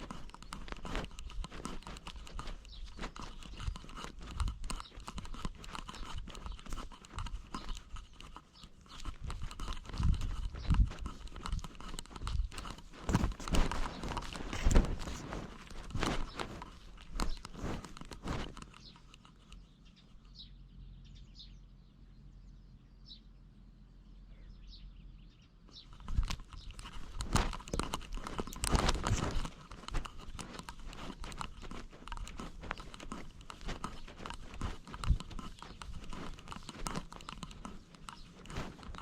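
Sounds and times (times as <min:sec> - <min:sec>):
cat paws scratching ground: 0:00.0 - 0:20.5, 0:25.8 - 0:39.0.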